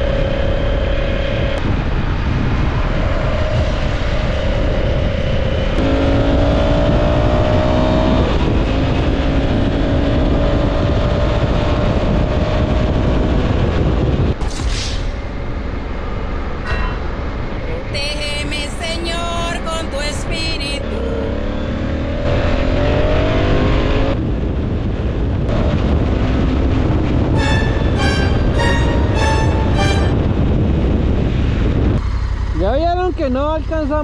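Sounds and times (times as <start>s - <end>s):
motorcycle engine accelerating: 0.0s - 14.3s
wind rush: 0.0s - 18.7s, 24.1s - 32.0s.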